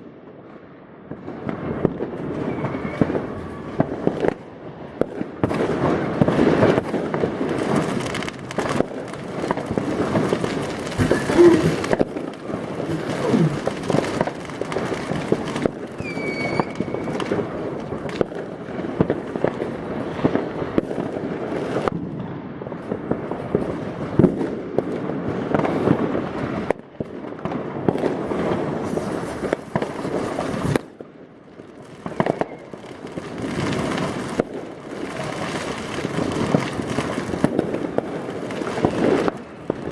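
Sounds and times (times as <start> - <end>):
fireworks bangs and crackles: 0.0 - 39.9
falling firework whistle: 2.3 - 4.4, 16.0 - 17.5, 32.1 - 32.7.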